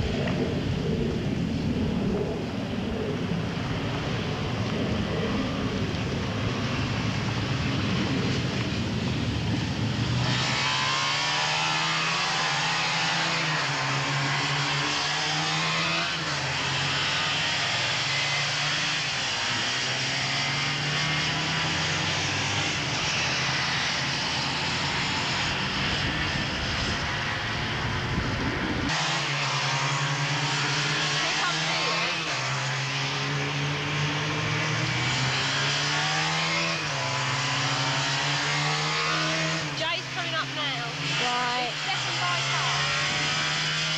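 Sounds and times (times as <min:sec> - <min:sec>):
wind buffeting microphone: 0:00.0 - 0:10.8, 0:22.0 - 0:29.0
motorcycle engines revving: 0:00.0 - 0:43.9.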